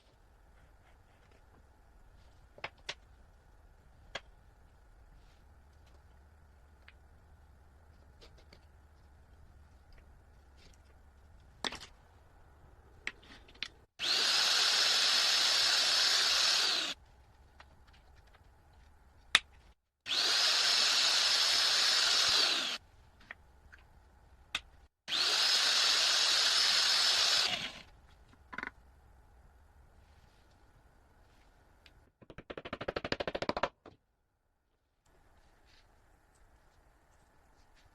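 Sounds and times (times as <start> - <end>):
power tool motor whining: 14.0 - 17.0, 20.1 - 22.8, 25.1 - 27.8.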